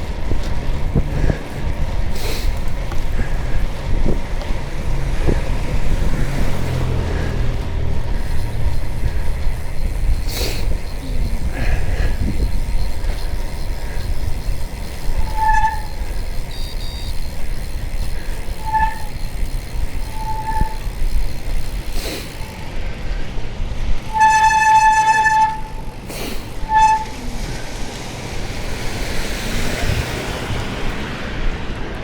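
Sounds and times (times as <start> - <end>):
road rumble inside vehicle: 0.0 - 32.0
car horn toots: 15.2 - 17.3, 24.1 - 25.8.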